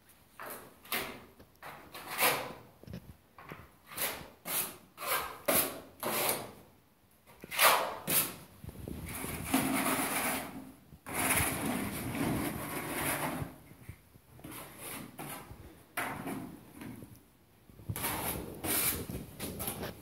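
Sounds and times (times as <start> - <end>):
trowel scraping plaster: 0.4 - 2.7, 3.8 - 6.6, 7.3 - 8.4, 9.1 - 13.6, 14.4 - 16.9, 17.9 - 20.0.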